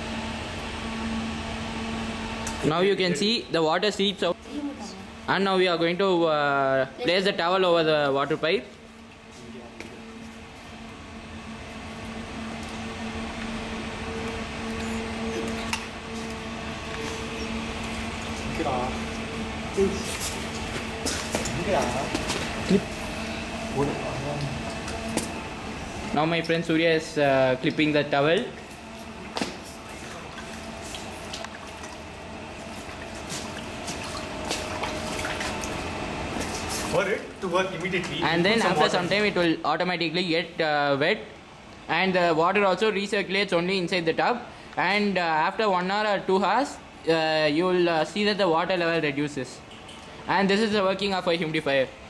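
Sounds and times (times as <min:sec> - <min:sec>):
humidifier fan and pump humming: 0:00.0 - 0:52.0
water dripping and trickling: 0:30.0 - 0:35.9.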